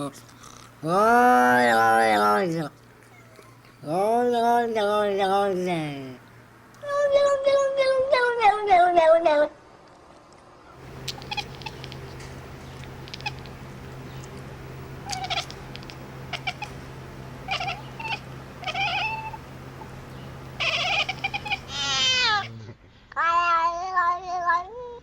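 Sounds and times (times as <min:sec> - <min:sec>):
low hum: 0:10.8 - 0:22.8
cat meowing and chirping: 0:11.1 - 0:12.1, 0:13.0 - 0:13.5, 0:15.0 - 0:16.8, 0:17.5 - 0:19.4, 0:20.6 - 0:22.5.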